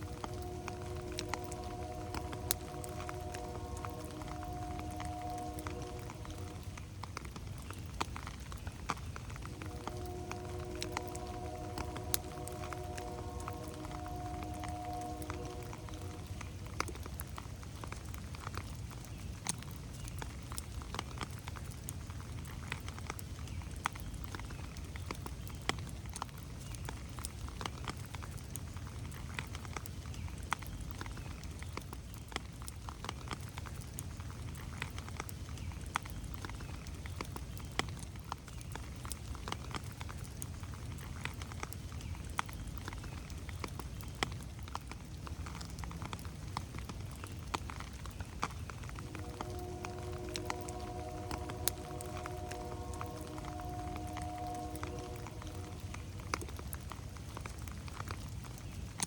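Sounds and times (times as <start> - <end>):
distant train horn chord: 0.0 - 19.0, 48.7 - 58.3
low steady rumble: 0.0 - 19.0, 48.2 - 58.6
rain dripping on leaves: 0.0 - 59.0.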